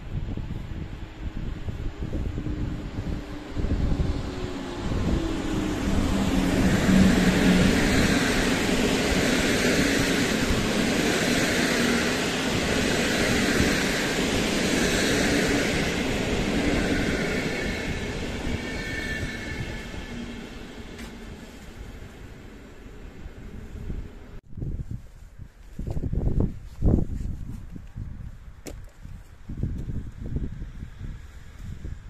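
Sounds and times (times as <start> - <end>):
electric locomotive hum: 0.0 - 24.4
train wheels rumbling over track: 0.0 - 24.4.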